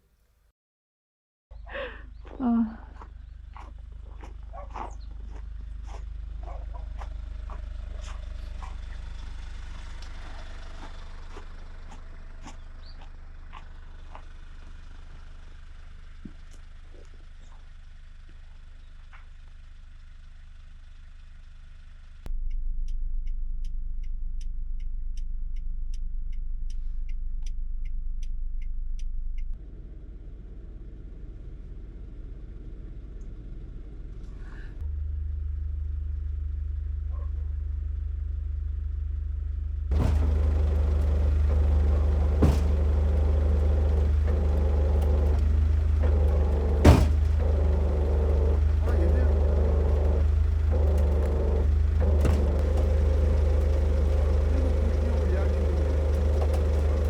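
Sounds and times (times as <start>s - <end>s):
vehicle engine low rumble: 1.5s - 57.0s
regular ticking: 22.3s - 29.6s, 39.9s - 57.0s.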